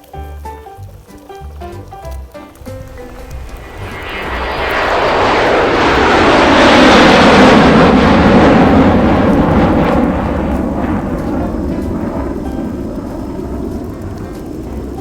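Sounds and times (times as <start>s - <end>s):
steady low beat: 0.0s - 6.7s, 8.6s - 15.0s
loud rushing rumble: 2.6s - 15.0s.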